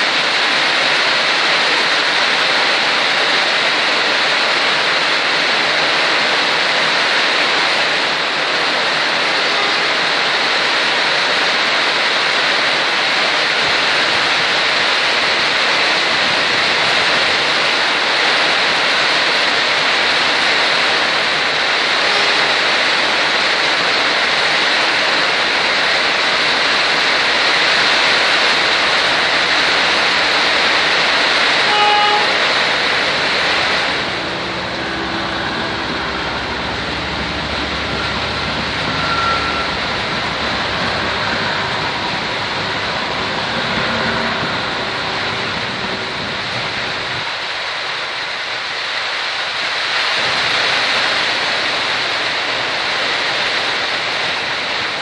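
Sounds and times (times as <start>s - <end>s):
heavy rain hissing: 0.0s - 55.0s
train engine rumble: 0.0s - 55.0s
short horn toot: 31.6s - 32.6s, 33.9s - 46.0s.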